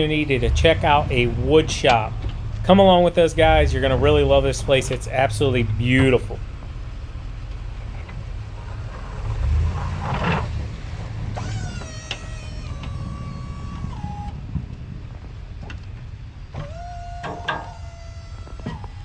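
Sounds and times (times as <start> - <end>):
vehicle engine rumbling: 0.0 - 19.0
high whine: 10.8 - 19.0.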